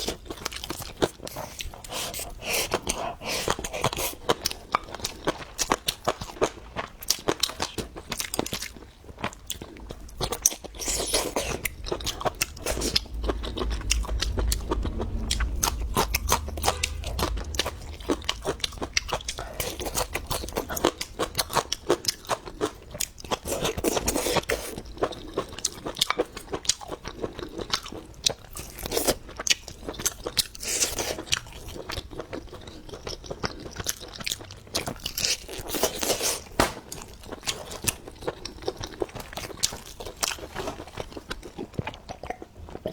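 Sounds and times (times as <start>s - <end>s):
person chewing crunchy food: 0.0s - 42.9s
low rumble: 9.5s - 22.8s.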